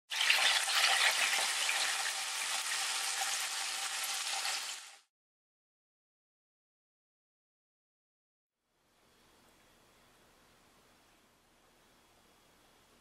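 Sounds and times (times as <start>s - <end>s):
food sizzling in a frying pan: 0.1s - 5.1s.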